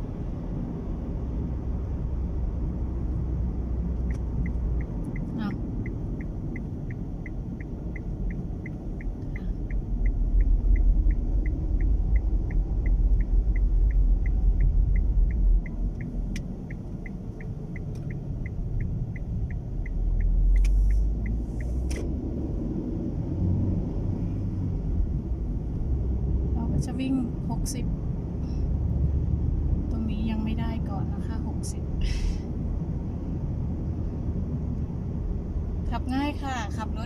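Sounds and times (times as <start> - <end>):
car driving rumble: 0.0 - 37.0
wind gusts against car: 0.0 - 37.0
turn signal ticking: 0.1 - 32.0
sharp clicks: 4.0 - 22.1.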